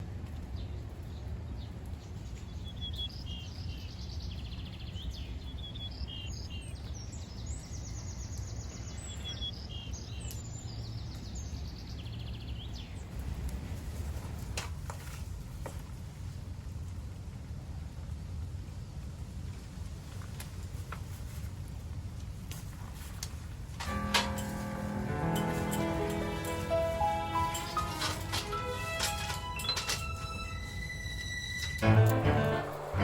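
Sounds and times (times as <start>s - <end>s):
small birds chirping: 0.4s - 13.3s
low outdoor rumble: 12.7s - 33.0s.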